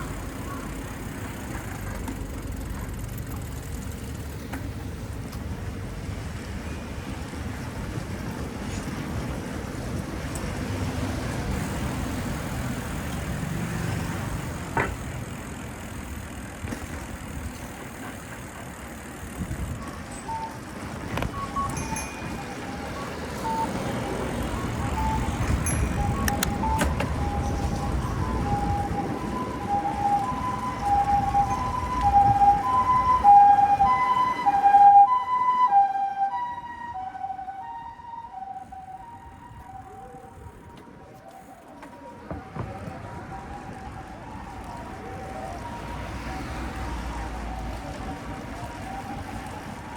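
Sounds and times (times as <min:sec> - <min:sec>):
road traffic: 0:00.0 - 0:49.9
two-tone ambulance siren: 0:19.6 - 0:49.9.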